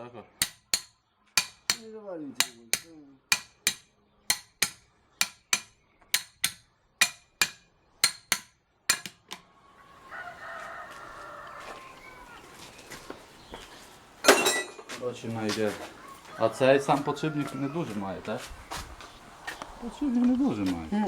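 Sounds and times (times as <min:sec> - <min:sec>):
hammer striking metal: 0:02.4 - 0:09.2
rooster crowing: 0:09.7 - 0:12.7, 0:15.7 - 0:18.5.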